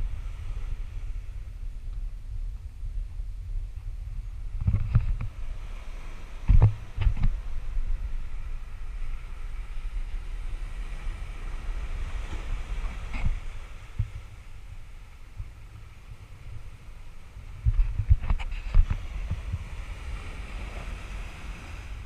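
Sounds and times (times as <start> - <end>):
wind rumbling over microphone: 0.0 - 22.0.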